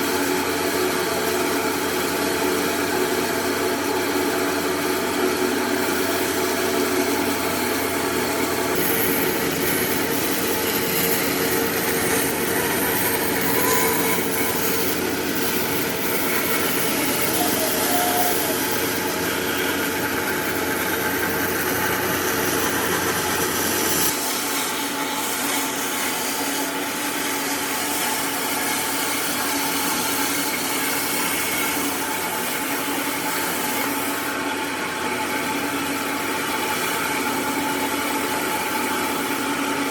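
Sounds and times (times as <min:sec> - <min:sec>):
power tool cutting wood: 0:00.0 - 0:39.9.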